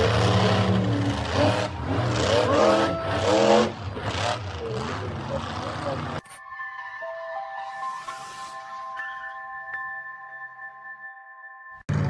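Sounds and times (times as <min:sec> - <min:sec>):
low engine rumble: 0:00.0 - 0:06.2
vehicle engines revving: 0:00.0 - 0:06.2.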